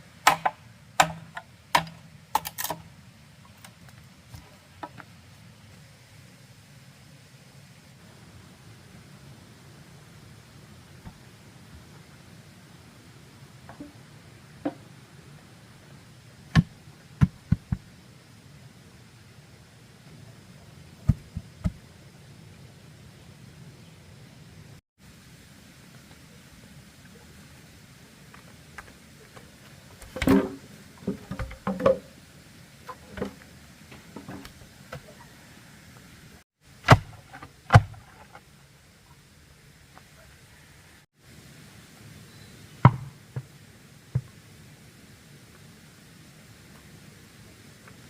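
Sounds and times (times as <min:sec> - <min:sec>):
bamboo poles knocking: 0:00.2 - 0:02.5.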